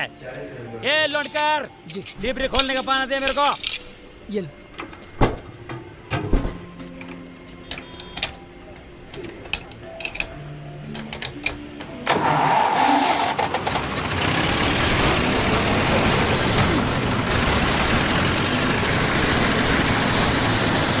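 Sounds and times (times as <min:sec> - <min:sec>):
petrol engine running: 0:11.8 - 0:21.0.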